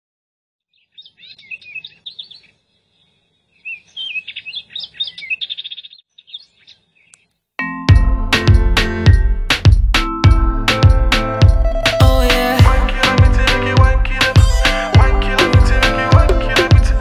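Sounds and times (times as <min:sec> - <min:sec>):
songbird chirping and trilling: 0:00.6 - 0:07.4.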